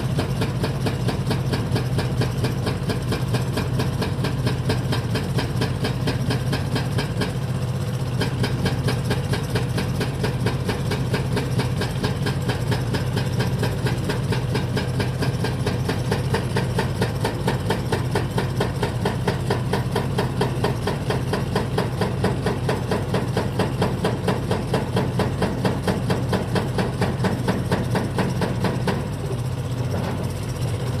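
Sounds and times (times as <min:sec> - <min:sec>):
diesel engine idling: 0:00.0 - 0:31.0.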